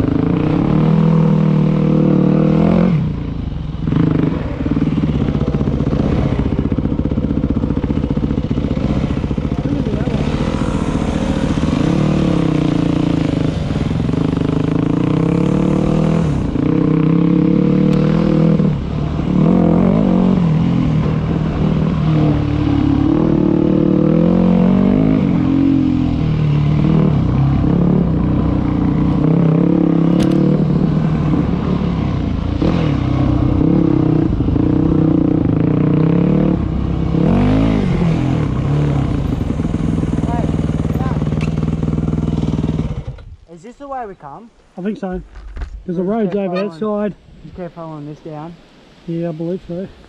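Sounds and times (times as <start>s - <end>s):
dirt bike engine revving: 0.0s - 3.2s, 3.8s - 43.3s.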